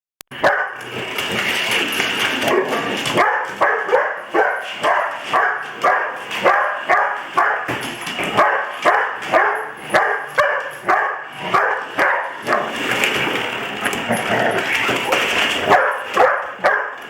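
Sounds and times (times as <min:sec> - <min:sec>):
dog barking: 0:00.4 - 0:00.8, 0:02.5 - 0:07.8, 0:08.4 - 0:12.7, 0:15.6 - 0:17.0.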